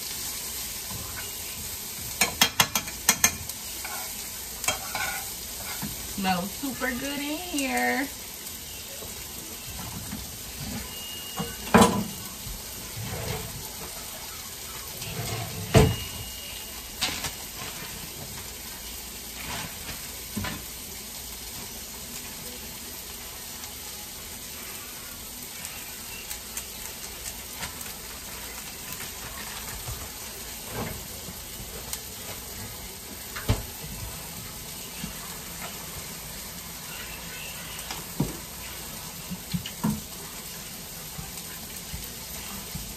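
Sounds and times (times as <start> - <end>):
potatoes sizzling in pans: 0.0 - 42.9.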